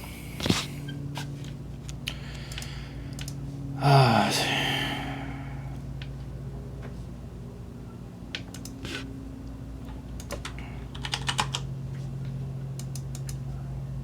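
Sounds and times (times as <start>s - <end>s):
steady low hum: 0.0s - 14.0s
keyboard keys typing: 10.2s - 11.6s.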